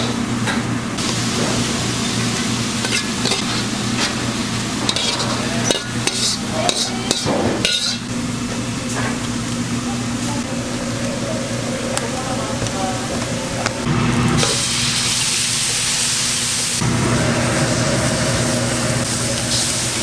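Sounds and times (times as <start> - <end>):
steady hum: 0.0 - 20.0
food sizzling in a metal pan: 1.0 - 8.1, 13.9 - 20.0
utensils clanking and scraping pan: 1.3 - 8.1.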